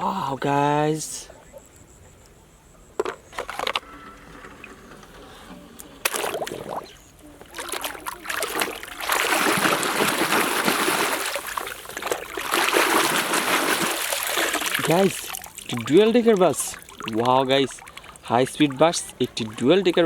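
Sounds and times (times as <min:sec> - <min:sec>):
water trickling and splashing: 0:05.8 - 0:20.0.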